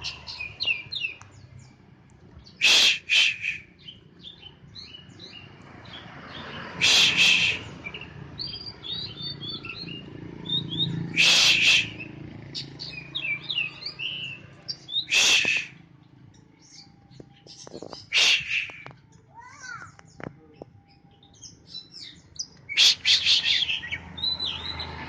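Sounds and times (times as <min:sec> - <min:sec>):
bird singing high chirps: 0:00.0 - 0:25.0
harsh rasping bird call: 0:02.5 - 0:03.9, 0:06.6 - 0:08.0, 0:10.7 - 0:15.8, 0:17.9 - 0:20.0, 0:22.7 - 0:24.6.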